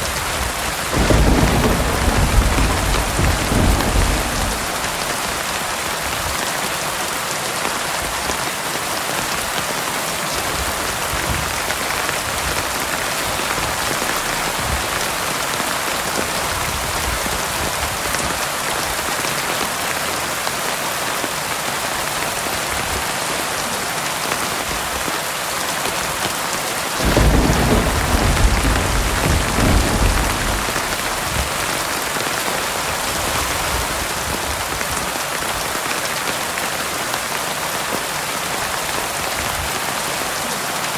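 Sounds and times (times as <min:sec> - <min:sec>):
deep thunder rumble: 0:00.0 - 0:06.4, 0:12.2 - 0:17.6, 0:27.0 - 0:34.7
heavy rain pouring: 0:00.0 - 0:40.9.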